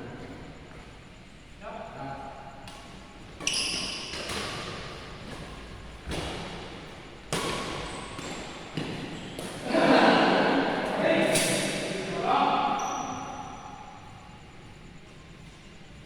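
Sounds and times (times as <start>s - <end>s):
racket hitting shuttlecock: 2.7s - 9.7s.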